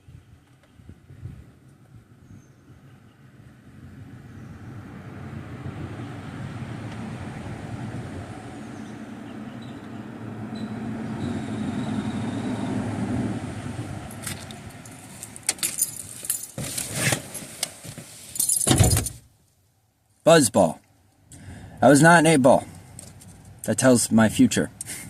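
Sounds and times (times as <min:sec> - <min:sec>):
vehicle passing by: 0:03.2 - 0:15.5
keys jangling: 0:14.2 - 0:16.6, 0:18.4 - 0:19.2
car door slam: 0:18.6 - 0:19.2.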